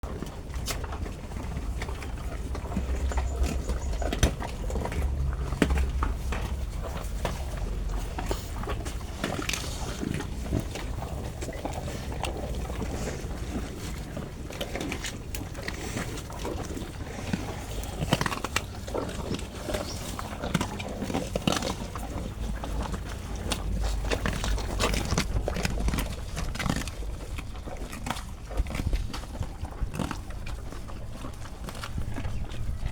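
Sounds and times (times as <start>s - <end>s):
cow crunching and chewing: 0.0s - 32.9s
low rumble: 1.2s - 15.5s.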